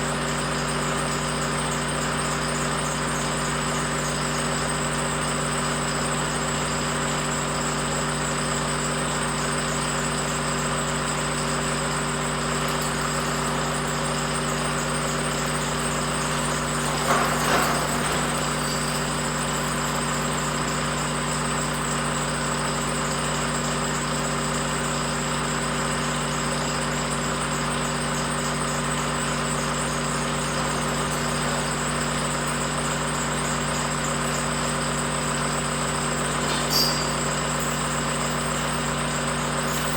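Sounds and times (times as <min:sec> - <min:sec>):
machine humming: 0:12.2 - 0:20.7.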